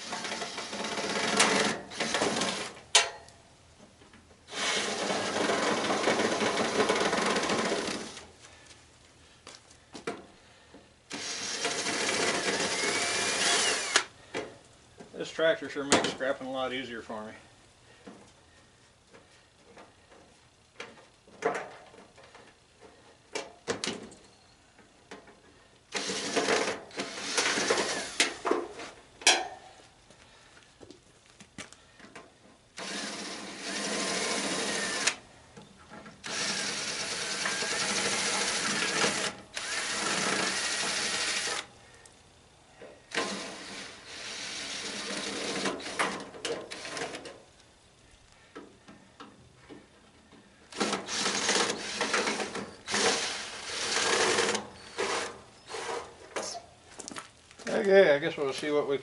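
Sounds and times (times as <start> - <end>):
power drill whining: 0.0 - 2.8, 4.5 - 8.3, 11.1 - 14.1, 25.9 - 28.9, 32.8 - 35.2, 36.2 - 41.7, 43.1 - 47.3, 50.7 - 56.6.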